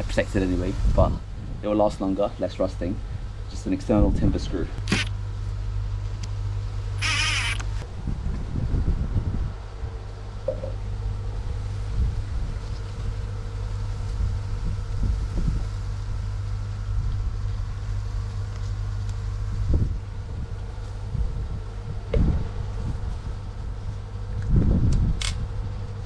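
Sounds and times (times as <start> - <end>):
low rumble: 7.7 - 26.0.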